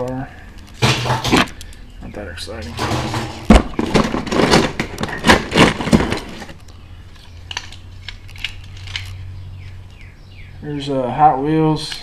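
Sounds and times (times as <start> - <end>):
toy cars clattering: 7.5 - 9.2.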